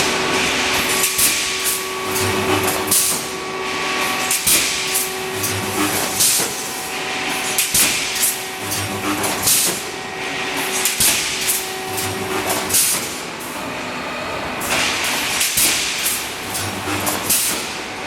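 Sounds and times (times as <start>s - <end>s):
steady machine hum: 0.0s - 15.4s.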